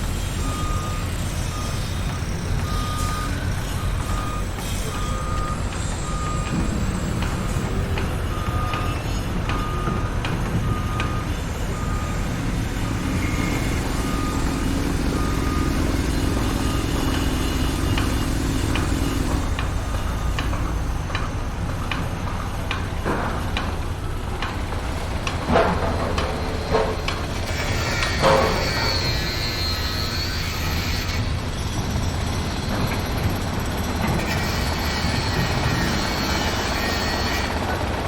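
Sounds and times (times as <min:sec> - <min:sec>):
truck engine rumble: 0:00.0 - 0:38.0
reversing alarm beeping: 0:00.3 - 0:33.4
loud metallic knocks: 0:05.7 - 0:31.1.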